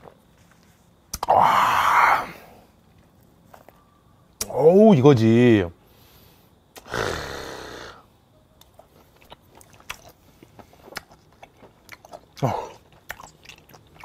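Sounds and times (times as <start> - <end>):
man chewing wet mouth sounds: 8.6 - 14.0.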